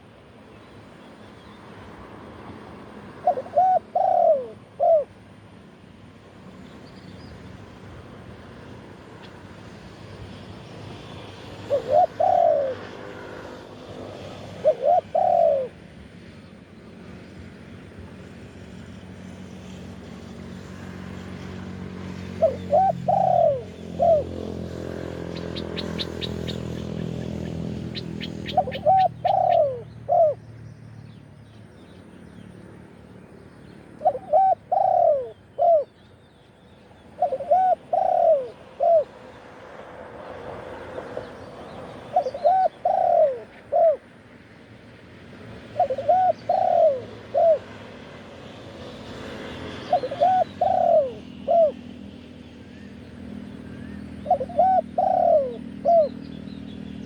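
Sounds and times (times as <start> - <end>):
passing vehicle engine hum: 0.0 - 57.0
dove cooing: 3.2 - 5.2, 11.4 - 15.8, 22.2 - 30.4, 34.0 - 36.0, 37.1 - 39.2, 42.0 - 44.1, 45.6 - 48.1, 49.6 - 52.0, 54.2 - 56.3.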